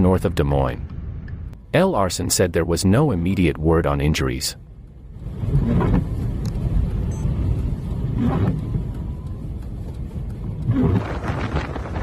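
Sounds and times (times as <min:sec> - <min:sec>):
road vehicles rumbling: 0:00.0 - 0:01.9, 0:04.5 - 0:12.0.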